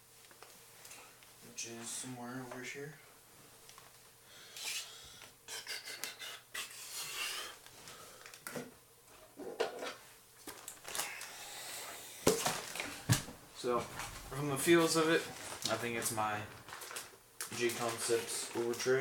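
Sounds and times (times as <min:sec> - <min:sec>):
package rustling and scraping: 0:12.3 - 0:13.2, 0:13.8 - 0:19.0.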